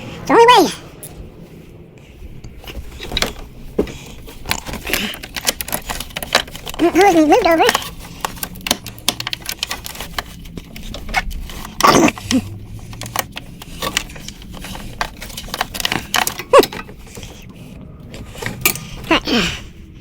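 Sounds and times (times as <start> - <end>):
hand tools clinking on metal: 3.0 - 17.5.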